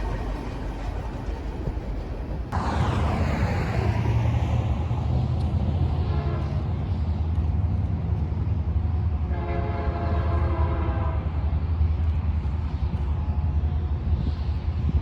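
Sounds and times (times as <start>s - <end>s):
train rumbling past: 0.0s - 15.0s
train horn chord: 6.0s - 6.6s, 9.3s - 11.3s.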